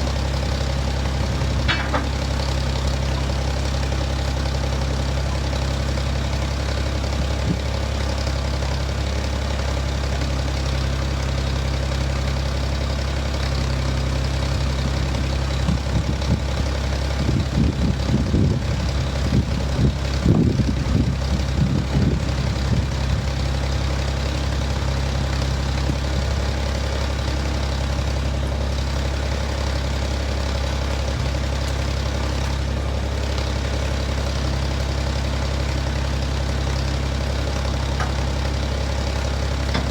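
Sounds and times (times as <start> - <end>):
engine idling: 0.0 - 39.9
irregular knocks and clanks: 1.5 - 2.6, 37.9 - 38.5, 39.6 - 39.9.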